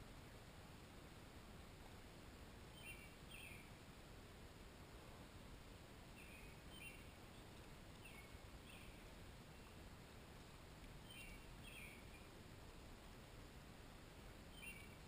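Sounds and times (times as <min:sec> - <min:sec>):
background hiss: 0:00.0 - 0:15.0
faint bird chirps: 0:02.7 - 0:03.8, 0:06.1 - 0:09.8, 0:11.0 - 0:12.4, 0:14.4 - 0:15.0.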